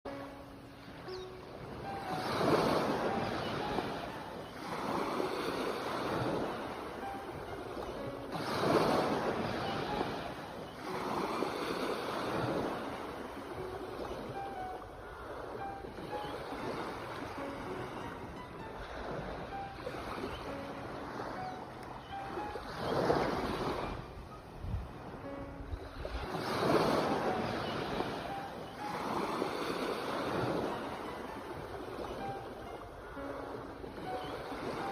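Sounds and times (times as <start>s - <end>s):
sea waves washing: 0.1s - 34.9s
wind on the microphone: 23.4s - 28.2s.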